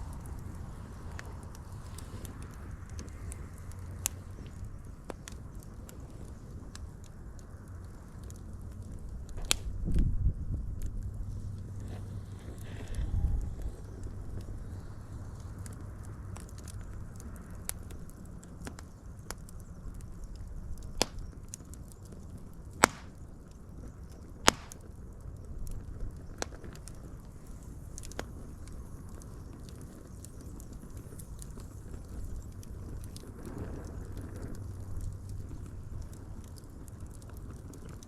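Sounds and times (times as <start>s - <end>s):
wood fire crackling: 0.0s - 38.0s
loud sharp pops: 21.0s - 21.3s, 22.8s - 23.2s, 24.5s - 24.9s.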